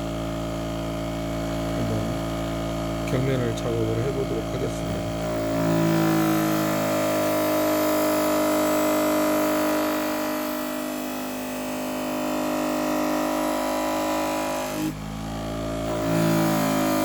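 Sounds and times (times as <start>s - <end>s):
electric motor humming: 0.0s - 17.0s.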